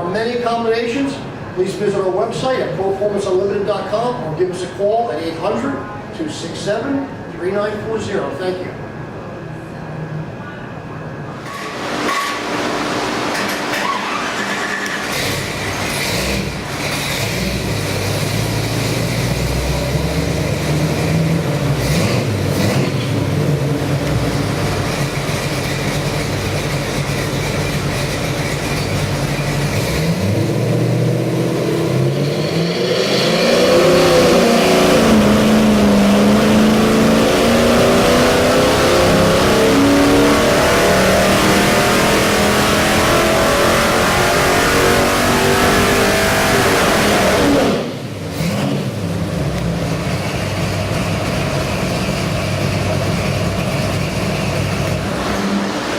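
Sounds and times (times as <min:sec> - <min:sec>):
engine revving up: 0:11.4 - 0:26.5, 0:29.0 - 0:50.2, 0:53.9 - 0:55.9.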